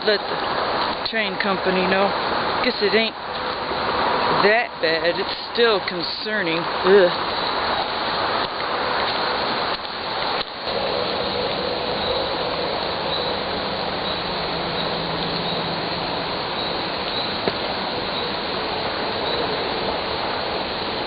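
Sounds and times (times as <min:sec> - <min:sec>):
flowing water: 0:00.0 - 0:21.0
insect chirping: 0:09.2 - 0:21.0.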